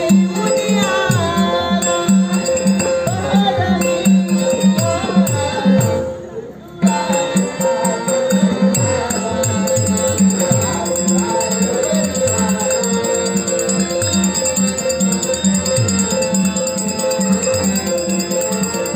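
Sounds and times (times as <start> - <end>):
harmonium held notes: 0.0 - 18.9
small cymbals ticking: 8.8 - 18.9.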